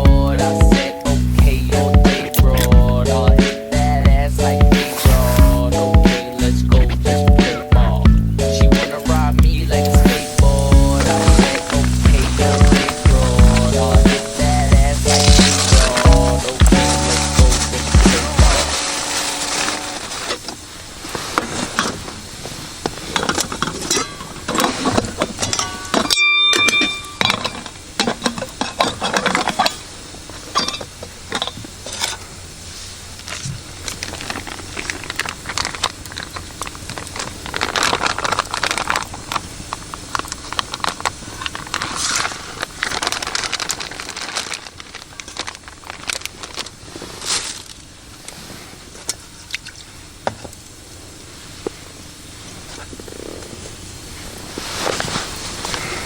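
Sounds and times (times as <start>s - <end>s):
rustling: 0.0s - 56.0s
objects clicking and clattering: 22.9s - 32.2s.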